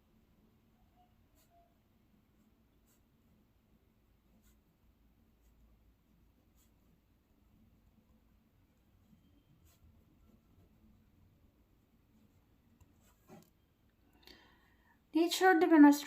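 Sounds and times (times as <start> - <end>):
pen scratching on paper: 1.3 - 1.7, 2.3 - 3.4, 4.2 - 7.1, 8.7 - 13.6.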